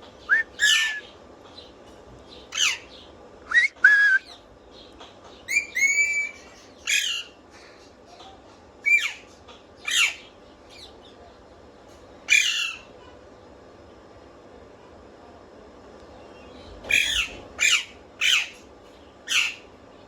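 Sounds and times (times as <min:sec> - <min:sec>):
parrot whistling and squawking: 0:00.3 - 0:01.1, 0:02.5 - 0:02.9, 0:05.5 - 0:07.4, 0:08.8 - 0:09.2, 0:09.8 - 0:10.2, 0:12.3 - 0:12.9, 0:16.9 - 0:18.6, 0:19.3 - 0:19.6.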